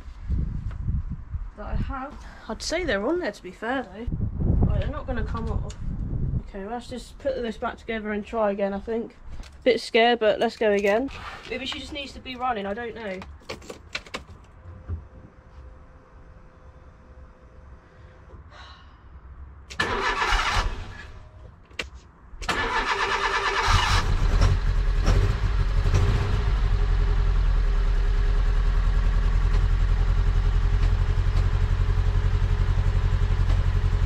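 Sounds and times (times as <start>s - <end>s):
starter motor cranking: 19.7s - 21.0s
misfiring car engine running: 24.0s - 34.0s.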